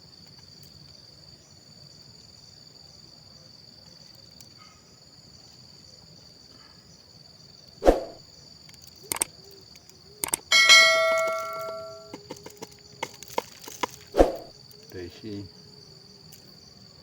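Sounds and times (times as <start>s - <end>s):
insects chorus: 0.0s - 17.0s
light clicks: 8.7s - 10.5s.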